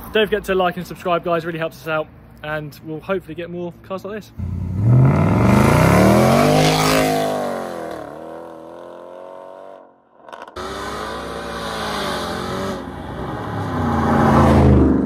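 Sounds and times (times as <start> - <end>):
car engine accelerating hard: 4.4 - 9.8, 10.4 - 15.0.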